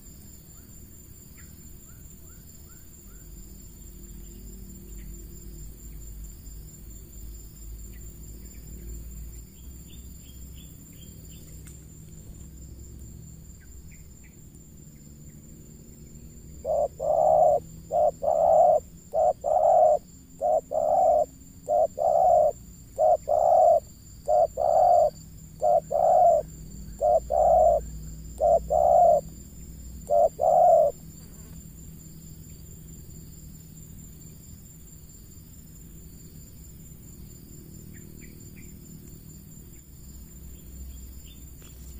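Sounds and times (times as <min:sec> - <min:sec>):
insect trilling: 0:12.3 - 0:31.6
dove cooing: 0:16.6 - 0:29.3, 0:30.0 - 0:31.0.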